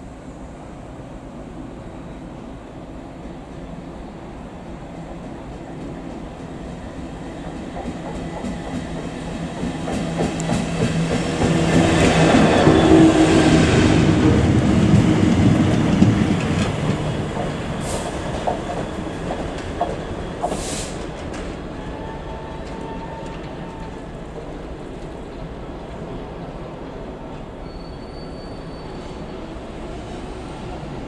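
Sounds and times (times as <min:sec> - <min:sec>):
train wheels rumbling on rails: 0:02.9 - 0:31.0.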